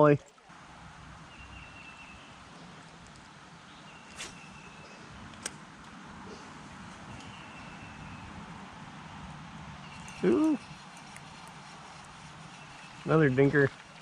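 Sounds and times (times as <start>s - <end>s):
low rumbling outdoor background noise: 0.0s - 14.0s.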